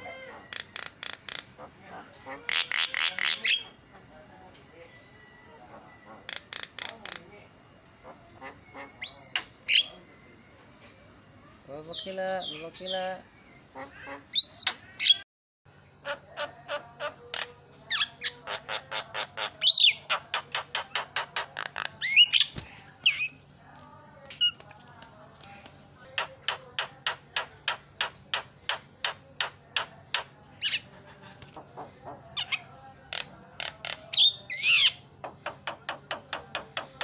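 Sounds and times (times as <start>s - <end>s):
harsh bird squawks: 0.0s - 3.8s, 5.7s - 7.3s, 8.0s - 10.0s, 13.7s - 15.2s
bird chattering calls: 0.0s - 4.0s, 5.7s - 7.4s, 8.0s - 10.0s.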